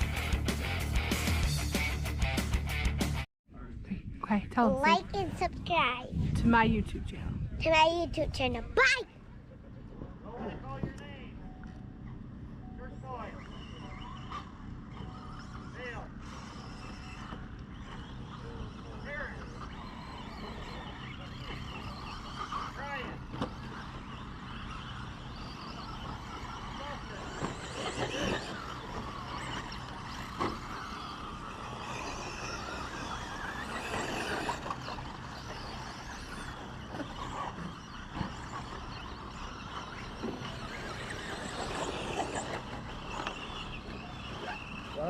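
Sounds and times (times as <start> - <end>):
steady low hum: 3.6 - 45.0
rc truck motors whining: 9.6 - 45.0.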